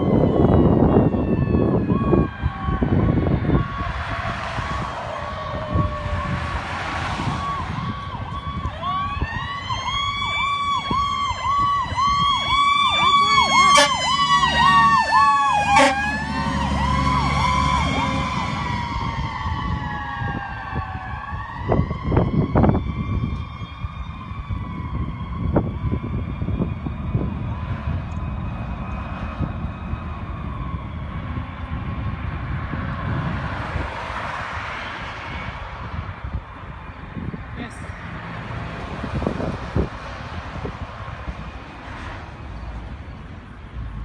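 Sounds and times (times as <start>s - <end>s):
fast pulsing siren: 0.0s - 32.4s
diesel engine rumble: 0.0s - 44.0s
wailing siren: 0.0s - 44.0s.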